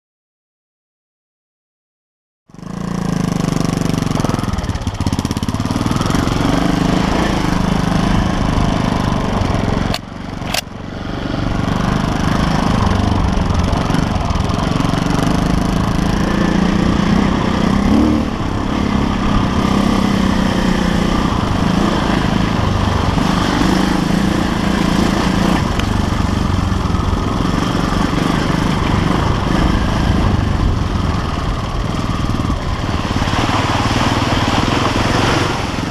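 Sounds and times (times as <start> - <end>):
motorcycle engine running: 2.5 - 35.9
sharp clicks: 9.9 - 10.7.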